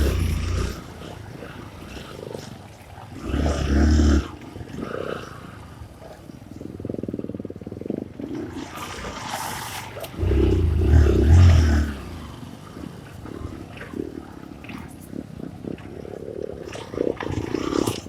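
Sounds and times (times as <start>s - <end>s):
dirt bike engine revving: 0.0s - 1.0s, 10.2s - 12.1s.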